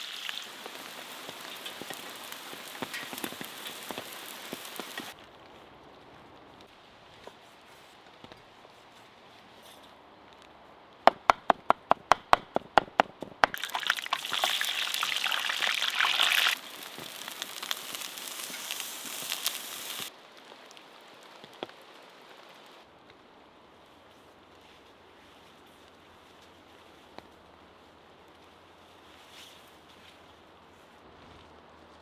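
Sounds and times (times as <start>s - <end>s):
food sizzling on hot surface: 0.0s - 5.2s, 13.5s - 20.1s
rain pattering: 0.0s - 5.2s, 13.4s - 22.8s
sharp knocks: 11.1s - 13.6s.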